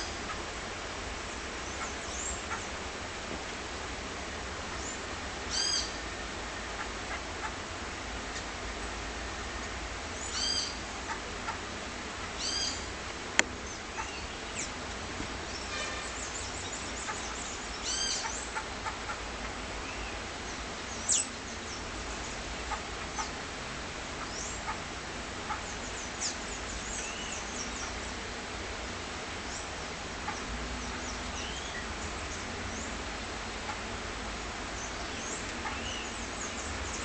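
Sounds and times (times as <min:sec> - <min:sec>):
birds chirping and calling: 0:01.6 - 0:02.8, 0:04.7 - 0:06.0, 0:09.6 - 0:11.6, 0:12.2 - 0:14.8, 0:15.4 - 0:23.4, 0:24.1 - 0:28.3, 0:29.4 - 0:33.0, 0:34.7 - 0:37.0.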